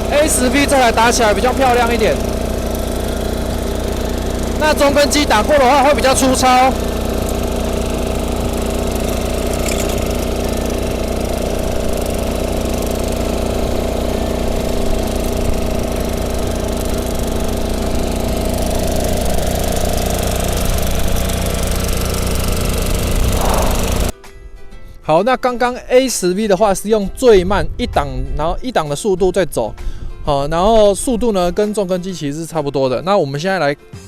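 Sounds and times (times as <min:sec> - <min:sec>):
tiller engine running: 0:00.0 - 0:24.1.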